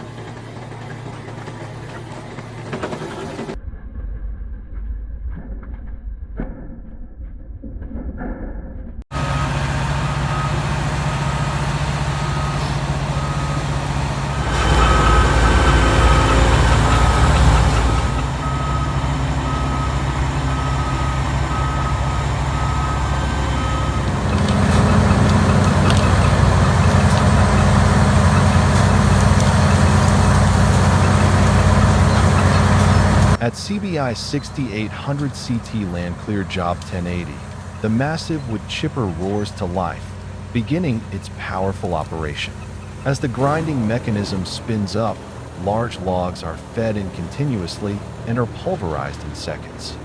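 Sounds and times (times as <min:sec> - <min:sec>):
large machine engine running: 0:00.0 - 0:05.6, 0:09.1 - 0:50.0
reversing alarm beeping: 0:09.1 - 0:40.2.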